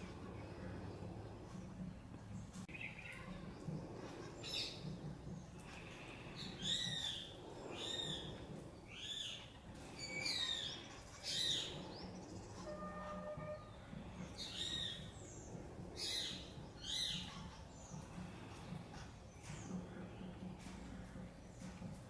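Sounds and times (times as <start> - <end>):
birds chirping: 0.0 - 22.0
low background hum: 0.0 - 22.0.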